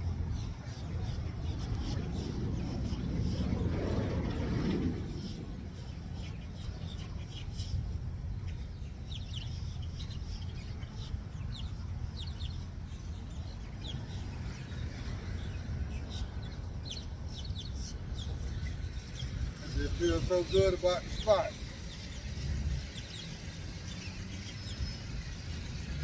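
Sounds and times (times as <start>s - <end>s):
steady low rumble: 0.0s - 26.0s
birds chirping: 8.5s - 26.0s.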